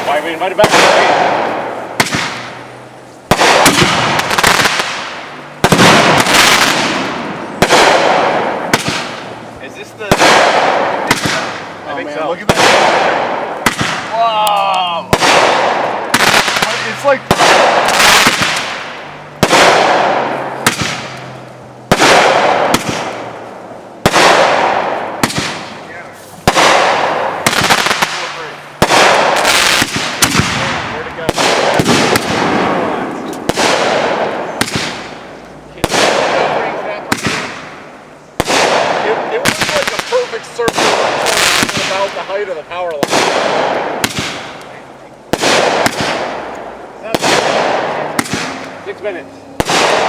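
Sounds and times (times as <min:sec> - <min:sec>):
small firework pops: 0:00.0 - 0:02.5, 0:33.2 - 0:36.2, 0:43.0 - 0:48.8
fireworks bangs: 0:00.0 - 0:50.0
fireworks crackling: 0:00.0 - 0:50.0.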